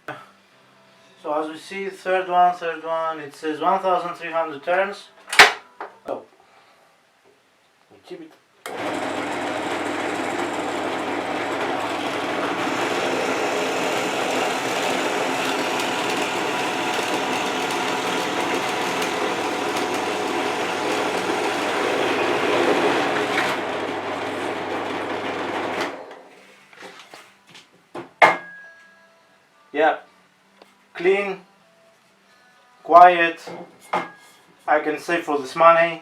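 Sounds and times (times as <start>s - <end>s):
bench drill motor humming: 8.7s - 26.1s.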